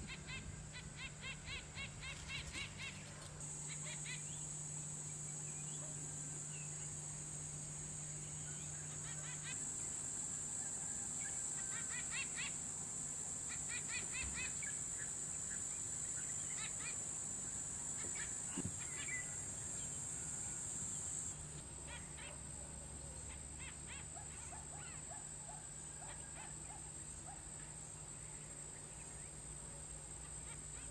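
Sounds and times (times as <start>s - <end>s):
birds chattering: 0.0s - 4.6s.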